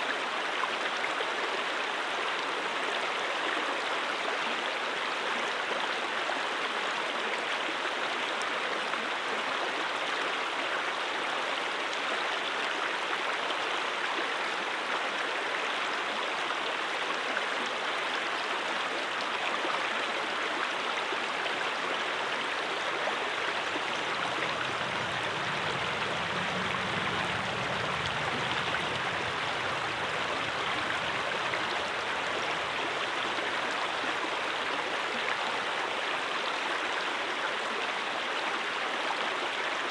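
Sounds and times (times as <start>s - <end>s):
brook flowing: 0.0s - 39.9s
faint low rumble: 23.4s - 34.6s.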